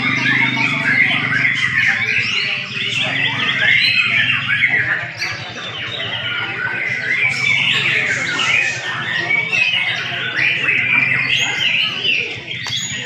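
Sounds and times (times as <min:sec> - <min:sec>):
steady low hum: 0:00.0 - 0:05.1
birds singing: 0:00.0 - 0:13.0.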